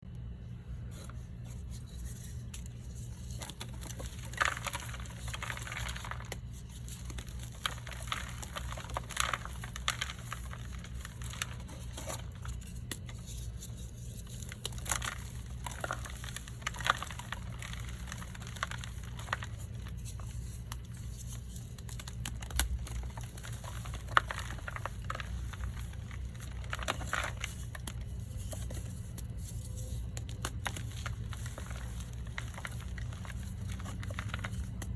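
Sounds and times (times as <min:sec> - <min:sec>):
steady low hum: 0:00.0 - 0:34.9
chalk blocks crunching: 0:01.7 - 0:34.9.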